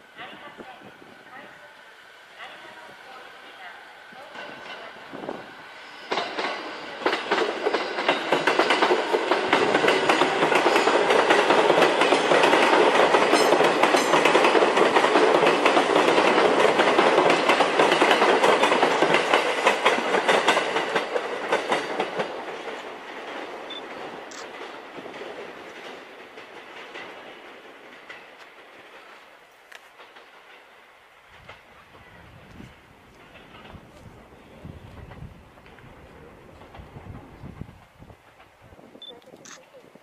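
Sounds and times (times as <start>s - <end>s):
train wheels clattering over rails: 4.2s - 34.2s.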